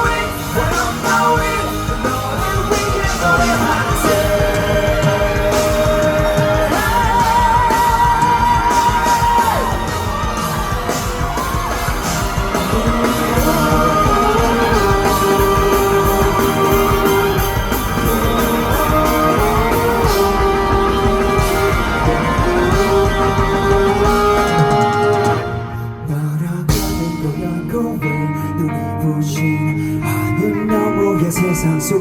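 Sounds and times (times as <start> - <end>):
people yelling: 0.0 - 25.6
lead guitar long held notes: 0.0 - 32.0
live rock band playing: 0.0 - 32.0.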